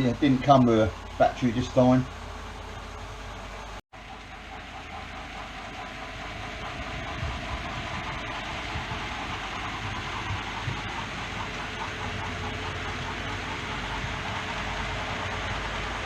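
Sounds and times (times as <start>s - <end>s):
model train running on track: 3.4s - 16.0s.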